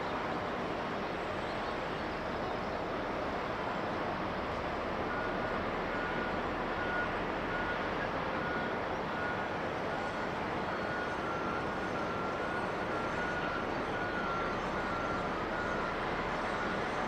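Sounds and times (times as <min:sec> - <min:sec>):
aircraft engine noise: 0:00.0 - 0:17.0
reversing beeper: 0:05.0 - 0:17.0.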